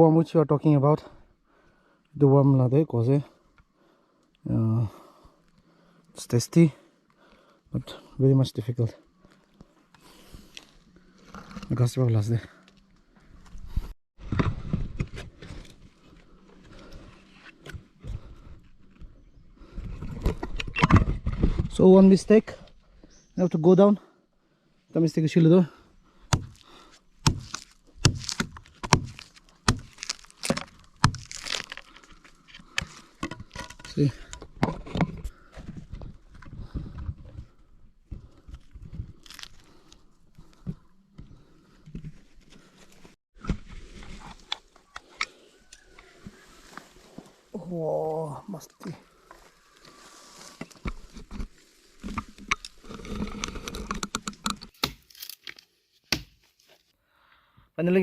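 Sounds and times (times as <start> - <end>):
blade chopping into wood: 26.3 - 26.6, 27.2 - 31.4, 54.1 - 55.2, 56.1 - 56.4
rustling: 26.6 - 34.2, 49.0 - 54.5.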